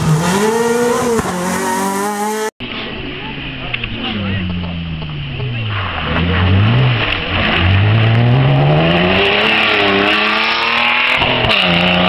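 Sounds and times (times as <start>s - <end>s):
rally car accelerating hard: 0.0s - 2.5s, 5.4s - 12.0s.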